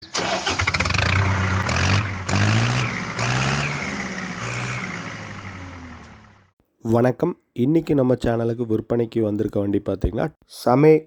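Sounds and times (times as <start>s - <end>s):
tractor diesel engine revving: 0.0s - 6.5s.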